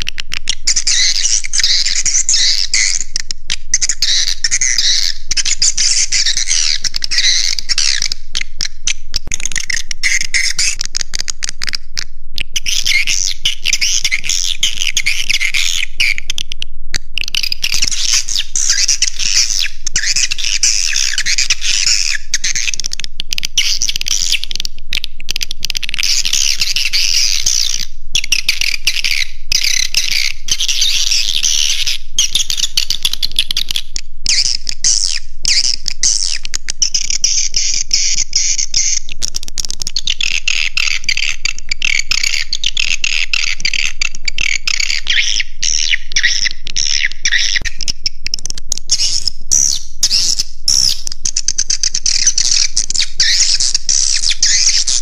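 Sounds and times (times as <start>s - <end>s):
swiftlets twittering and chirping: 0.5s - 11.3s, 17.2s - 22.9s, 23.5s - 24.6s, 25.8s - 39.1s, 48.9s - 55.0s.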